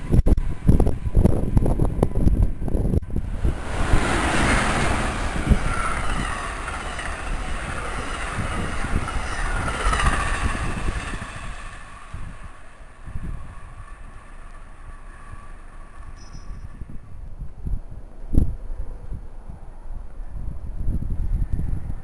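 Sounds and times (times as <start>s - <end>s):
train wheels rumbling on rail: 0.0s - 20.2s
whining tones sliding in pitch: 3.2s - 17.0s.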